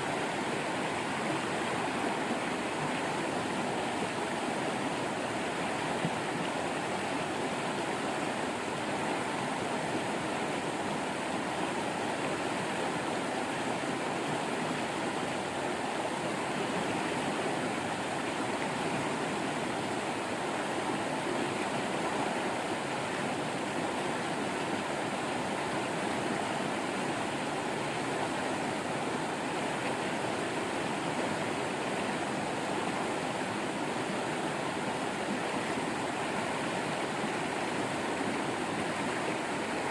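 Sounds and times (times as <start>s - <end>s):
waterfall rushing: 14.8s - 39.9s.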